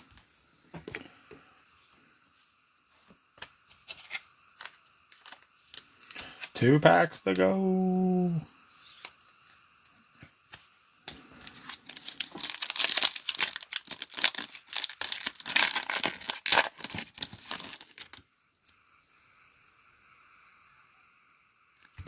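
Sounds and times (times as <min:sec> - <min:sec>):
plastic wrapper tearing and crinkling: 0:03.7 - 0:06.6, 0:11.4 - 0:18.2.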